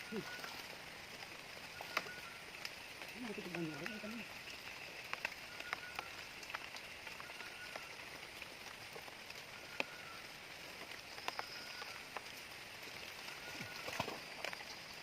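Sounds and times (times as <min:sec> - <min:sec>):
raindrops clicking close by: 0:00.0 - 0:15.0
steady rain falling: 0:00.0 - 0:15.0
faint high chirps: 0:01.7 - 0:02.4, 0:05.4 - 0:06.2, 0:11.1 - 0:12.0.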